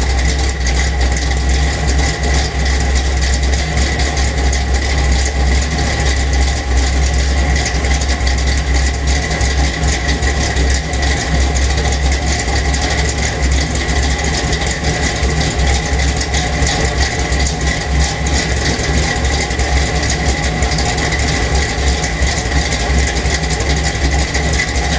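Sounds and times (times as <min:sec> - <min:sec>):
engine idling roughly: 0:00.0 - 0:24.9.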